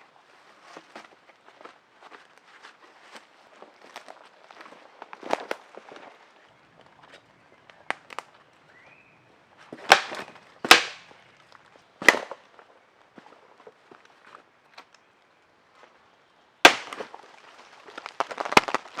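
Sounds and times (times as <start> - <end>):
sharp cracks: 7.8 - 8.3, 9.8 - 12.5, 16.6 - 19.0.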